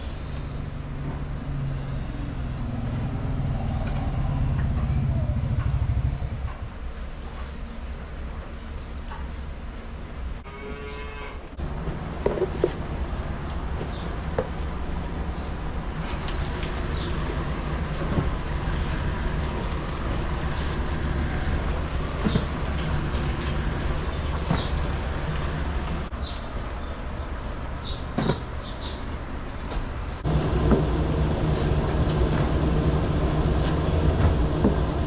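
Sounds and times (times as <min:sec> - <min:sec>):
low machine hum: 0:00.0 - 0:08.2, 0:30.2 - 0:35.0.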